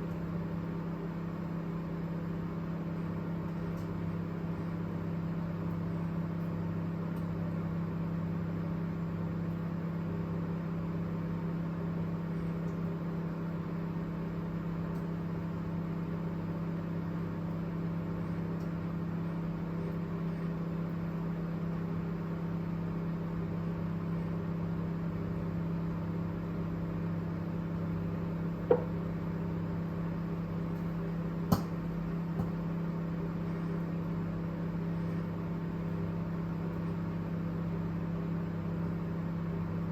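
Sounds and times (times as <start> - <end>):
microwave oven humming: 0.0 - 39.9
microwave sharp clicks: 28.6 - 29.0, 31.5 - 32.7.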